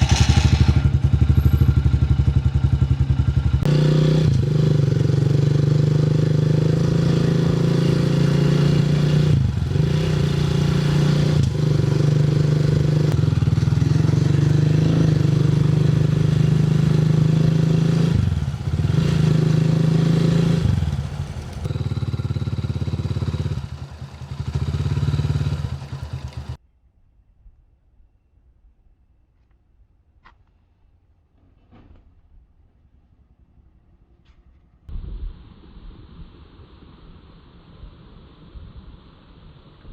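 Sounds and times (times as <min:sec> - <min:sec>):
vehicle engine running: 0:00.0 - 0:26.6.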